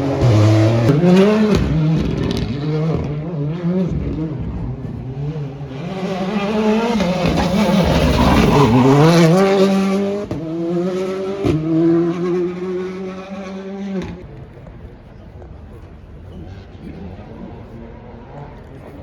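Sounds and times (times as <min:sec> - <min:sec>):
rally car engine at full throttle: 0:00.0 - 0:19.0.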